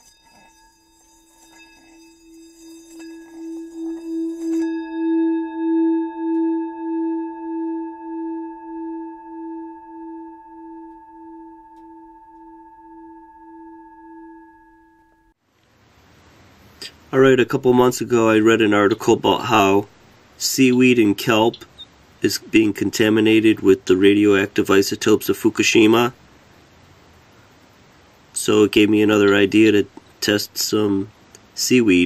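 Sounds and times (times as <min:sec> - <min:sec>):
faint high shimmer: 0:00.0 - 0:15.4
long ringing tone: 0:00.0 - 0:15.4.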